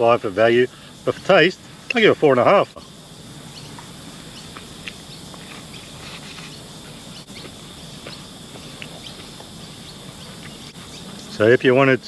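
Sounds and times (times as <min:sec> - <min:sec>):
insects buzzing: 0:00.0 - 0:12.0
biting and chewing crunchy food: 0:04.5 - 0:06.6, 0:07.3 - 0:11.0.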